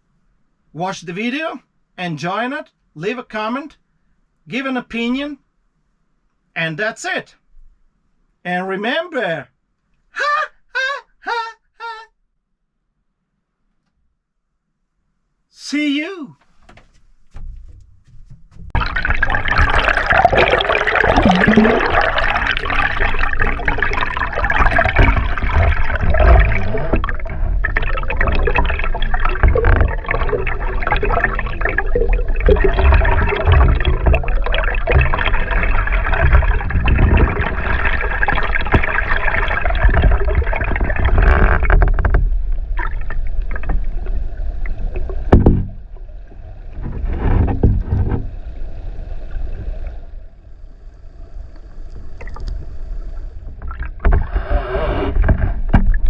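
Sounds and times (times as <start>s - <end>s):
river water rushing and bubbling: 18.8s - 50.4s.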